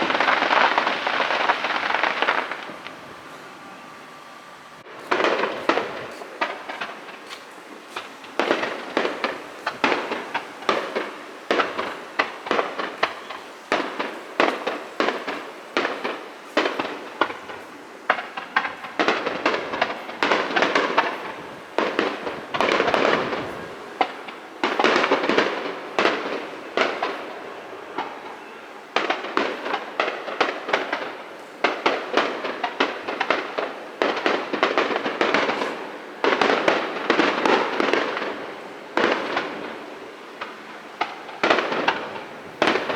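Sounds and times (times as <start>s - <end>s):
firework shell bursts: 0.0s - 4.2s, 5.0s - 27.4s
fireworks crackling: 0.0s - 42.9s.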